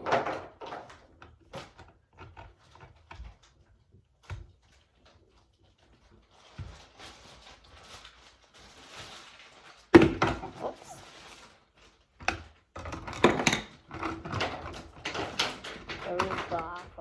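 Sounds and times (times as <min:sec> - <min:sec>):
plastic bricks clicking: 0:12.3 - 0:17.0.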